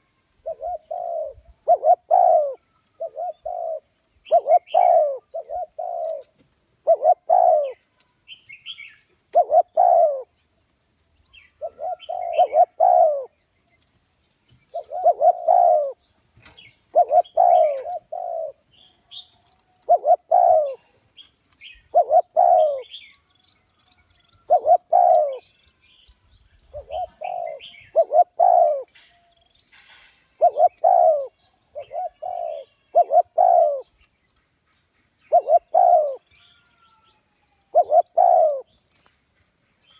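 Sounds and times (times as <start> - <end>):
dove cooing: 0.0 - 8.0, 9.3 - 10.3, 11.4 - 13.4, 14.6 - 21.0, 21.6 - 23.1, 24.4 - 25.5, 26.6 - 28.9, 30.3 - 34.0, 35.2 - 38.8.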